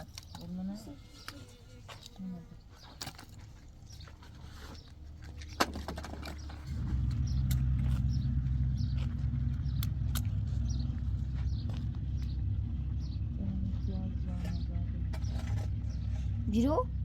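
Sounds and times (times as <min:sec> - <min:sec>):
engine running: 0:04.2 - 0:17.0.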